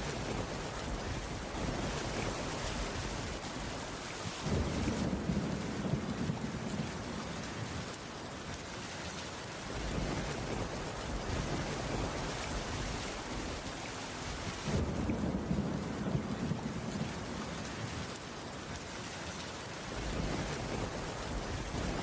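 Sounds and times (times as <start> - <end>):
thunder rumbling: 0.0 - 7.4, 14.3 - 18.0, 19.9 - 22.0
steady rain: 0.0 - 22.0.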